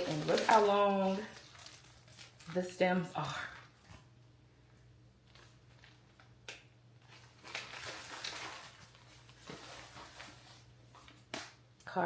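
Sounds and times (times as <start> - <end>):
paper rustling: 0.0 - 4.0, 5.3 - 6.3, 7.0 - 11.6
low room hum: 0.0 - 12.0.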